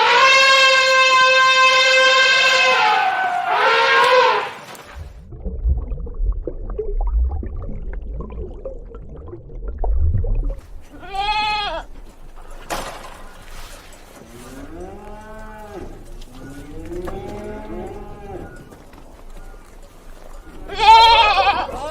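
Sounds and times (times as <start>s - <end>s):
low rumble: 5.0s - 10.9s
livestock calling: 13.2s - 21.9s.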